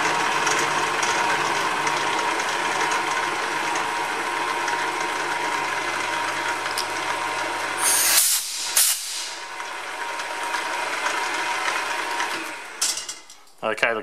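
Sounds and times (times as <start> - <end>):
milling machine cutting: 2.9 - 12.8
short loud hisses: 7.8 - 9.4.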